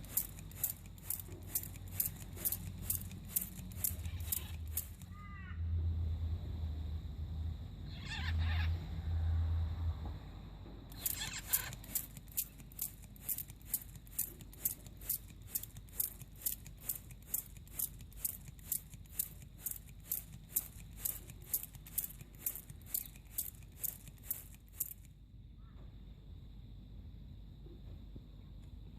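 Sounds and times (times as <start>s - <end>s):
water spraying in squirts: 0.0s - 5.1s, 10.9s - 25.1s.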